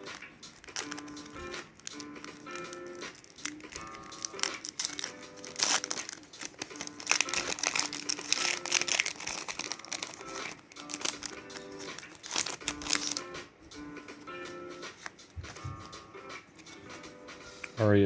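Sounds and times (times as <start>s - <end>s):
foil wrappers crinkling and tearing: 0.0s - 13.4s, 14.2s - 16.0s
background music: 0.0s - 18.0s.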